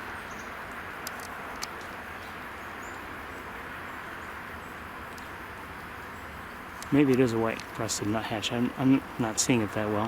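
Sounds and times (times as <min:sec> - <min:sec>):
outdoor background noise: 0:00.0 - 0:10.0
sharp clicks: 0:01.0 - 0:02.0, 0:06.8 - 0:07.8.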